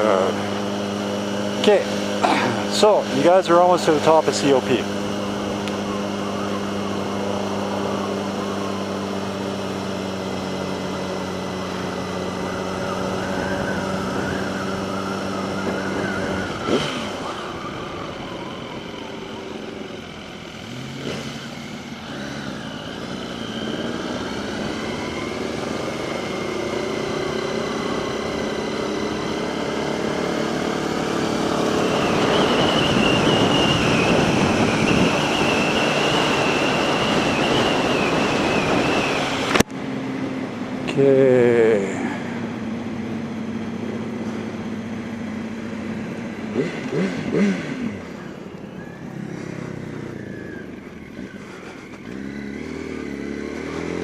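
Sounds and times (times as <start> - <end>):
motorcycle engine running: 0.0 - 54.0
wind noise: 31.9 - 39.7.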